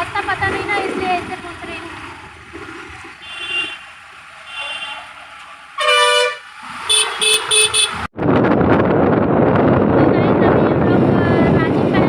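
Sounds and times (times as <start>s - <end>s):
vehicle horns honking: 3.2s - 5.2s, 5.8s - 8.1s
wind rush on microphone: 7.7s - 12.0s.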